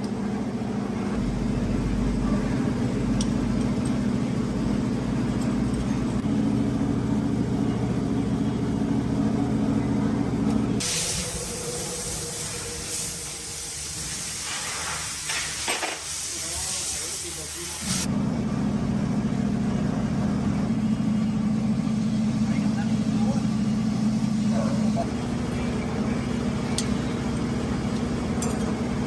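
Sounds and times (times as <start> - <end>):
heavy engine running: 0.0 - 29.0
loud hiss of air or spray: 10.8 - 18.1.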